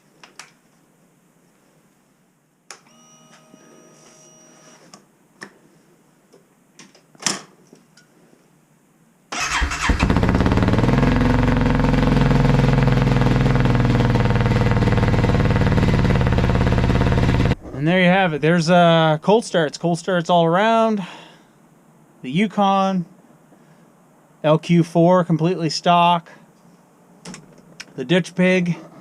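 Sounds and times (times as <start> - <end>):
truck engine starting and idling: 9.3 - 18.6.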